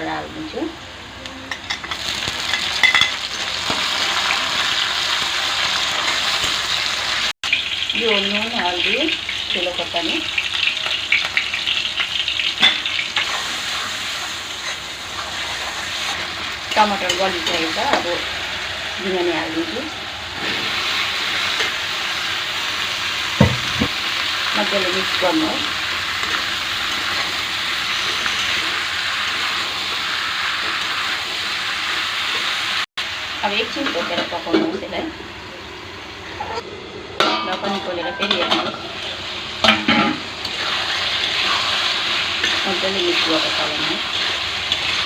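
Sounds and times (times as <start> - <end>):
masala sizzling in hot oil: 1.6 - 36.4, 37.6 - 45.0
stirring knocks in pan: 23.3 - 24.0.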